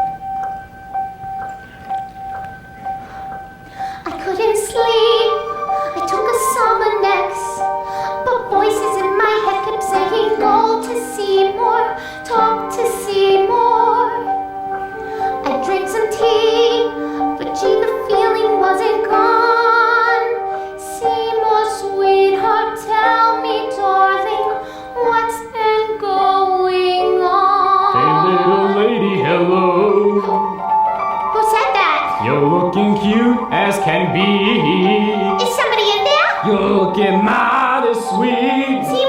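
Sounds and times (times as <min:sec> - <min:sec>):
instrumental accompaniment: 0:00.0 - 0:26.2, 0:27.1 - 0:39.0
woman singing a slow song: 0:04.0 - 0:14.3, 0:15.3 - 0:30.6, 0:31.4 - 0:35.8.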